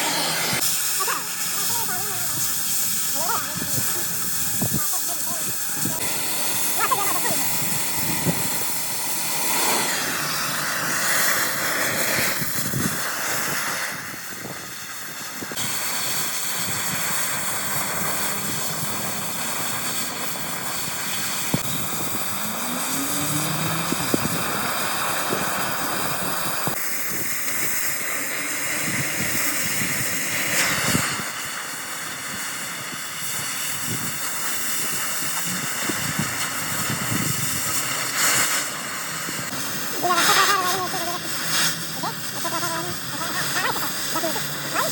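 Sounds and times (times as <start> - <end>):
hissing workshop machinery: 0.0 - 44.9.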